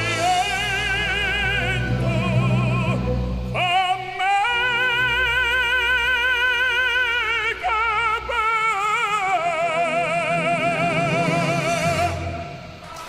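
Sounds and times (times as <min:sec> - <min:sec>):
operatic voice singing: 0:00.0 - 0:13.0.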